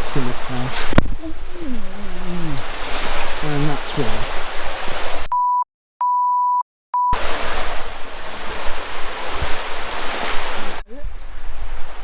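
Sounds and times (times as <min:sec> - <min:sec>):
river water rushing: 0:00.0 - 0:05.3, 0:07.2 - 0:12.0
censor bleep tone: 0:05.3 - 0:07.2.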